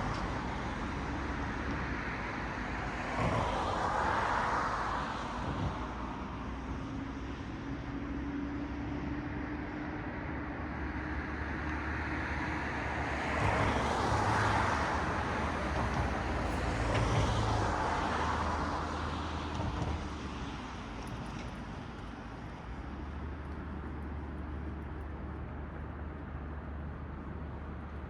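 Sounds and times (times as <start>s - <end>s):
cars passing: 11.1s - 28.0s.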